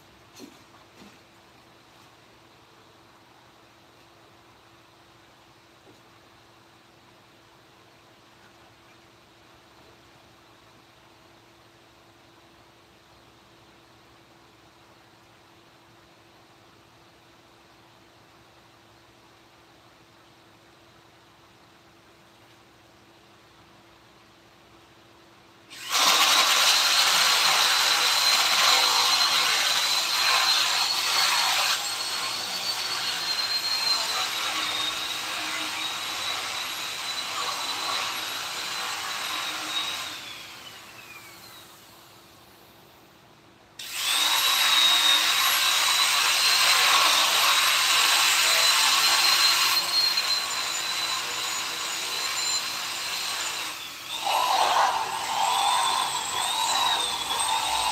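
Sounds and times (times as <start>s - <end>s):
electric rotary tool whining: 25.7s - 41.8s, 43.8s - 57.9s.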